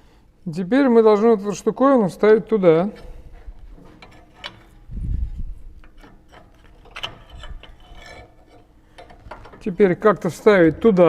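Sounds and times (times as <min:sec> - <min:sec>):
clicks and knocks of hand work: 0:02.9 - 0:04.9, 0:05.8 - 0:11.0.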